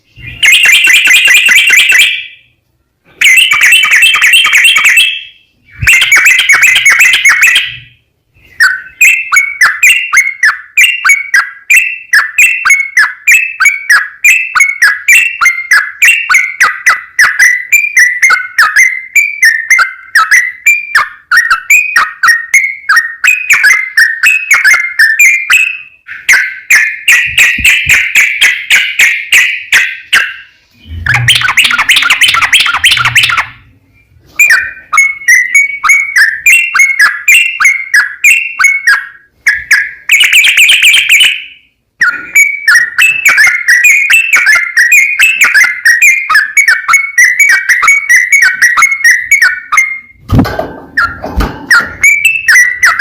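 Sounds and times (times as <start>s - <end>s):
bird song chattering: 0.0s - 2.5s, 3.2s - 50.2s, 51.0s - 53.0s.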